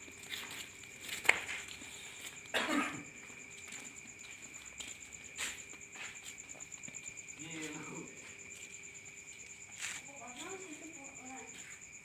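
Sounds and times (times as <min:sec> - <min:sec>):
person coughing: 0:02.5 - 0:03.1.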